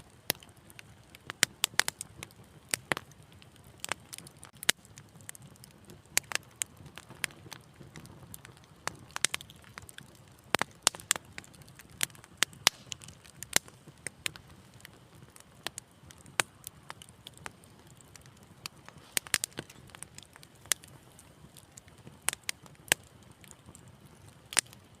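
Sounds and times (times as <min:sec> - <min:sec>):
low rumble of flames: 0:00.0 - 0:25.0
wood fire crackling: 0:00.0 - 0:25.0.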